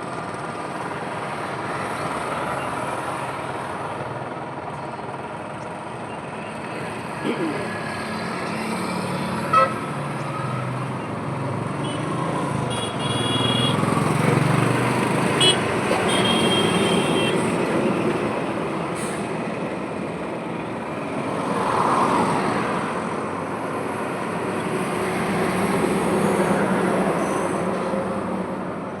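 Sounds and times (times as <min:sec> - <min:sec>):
highway traffic: 0:00.0 - 0:29.0
vehicle horns tooting: 0:09.5 - 0:09.9, 0:12.7 - 0:13.8, 0:15.4 - 0:17.5.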